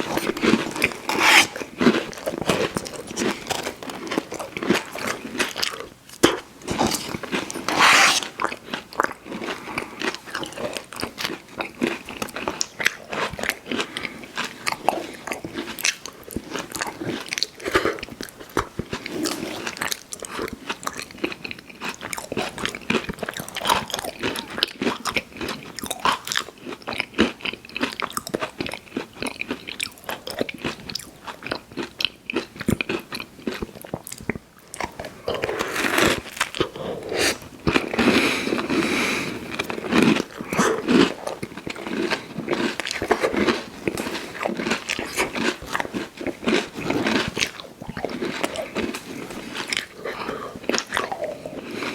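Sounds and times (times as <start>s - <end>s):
wet mouth sounds: 0.0s - 3.6s, 4.9s - 10.5s, 33.8s - 41.8s
crunchy pie chewed: 0.0s - 51.9s.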